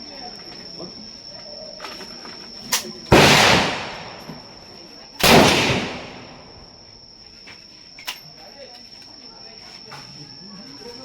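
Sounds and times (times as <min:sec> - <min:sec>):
rifle shots echoing: 0:03.1 - 0:06.7.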